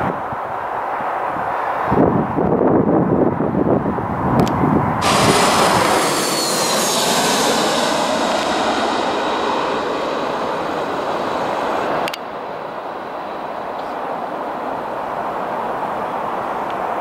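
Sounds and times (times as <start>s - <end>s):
jet airliner passing: 4.8s - 16.6s.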